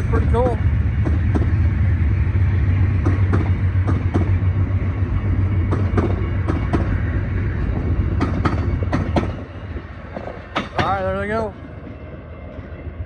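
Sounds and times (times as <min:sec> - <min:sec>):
train rumbling past: 0:00.0 - 0:13.0
wheels clicking over rail joints: 0:10.1 - 0:11.4.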